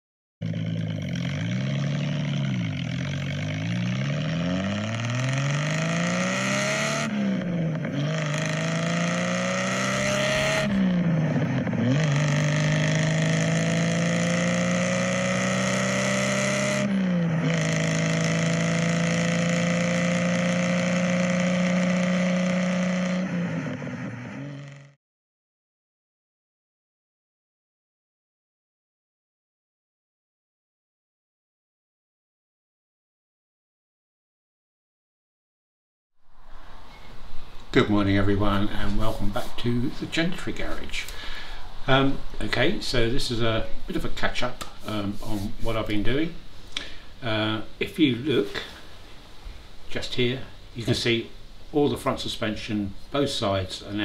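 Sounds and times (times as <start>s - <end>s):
car engine revving and accelerating: 0.4s - 25.0s.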